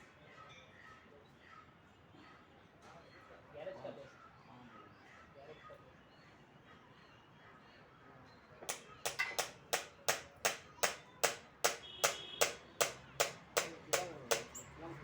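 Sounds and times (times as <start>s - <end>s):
sharp ringing knocks: 8.7s - 14.7s.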